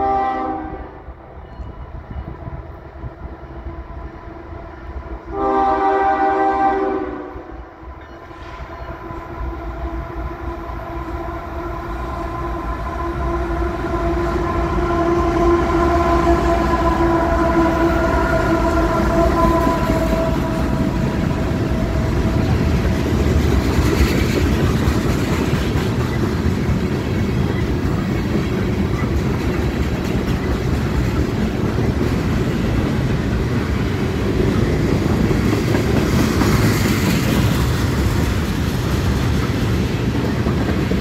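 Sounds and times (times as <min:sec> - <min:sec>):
train air horn: 0:00.0 - 0:01.1, 0:03.6 - 0:22.9
locomotive rumble: 0:00.0 - 0:41.0
train wheel noise: 0:00.0 - 0:41.0.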